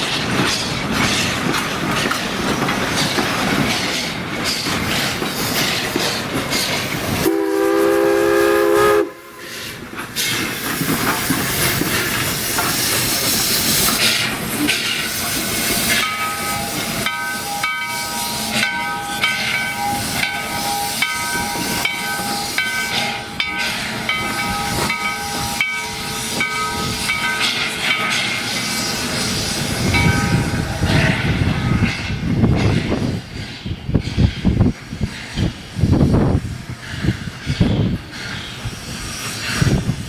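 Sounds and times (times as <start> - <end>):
locomotive steam hissing: 0.0 - 40.0
locomotive bell ringing: 15.6 - 28.8, 29.9 - 32.3.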